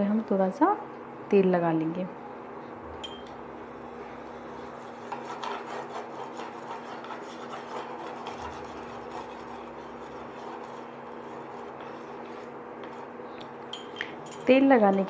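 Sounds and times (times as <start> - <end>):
utensil scraping a pan: 4.8 - 13.1.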